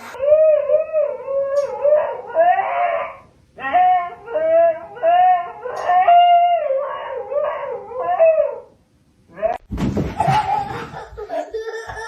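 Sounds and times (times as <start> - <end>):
dog howling: 0.2 - 8.7.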